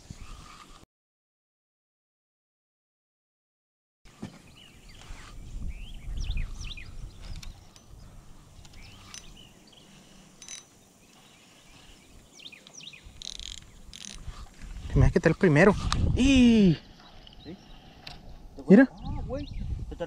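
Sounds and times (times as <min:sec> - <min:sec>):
small birds chirping: 0:04.2 - 0:15.7, 0:16.6 - 0:20.0.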